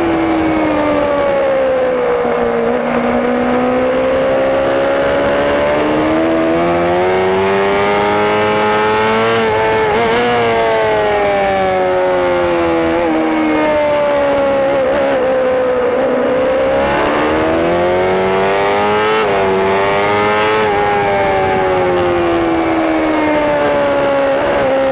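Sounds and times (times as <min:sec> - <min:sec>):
motorbike engine: 0:00.0 - 0:24.9
wind noise: 0:00.0 - 0:24.9.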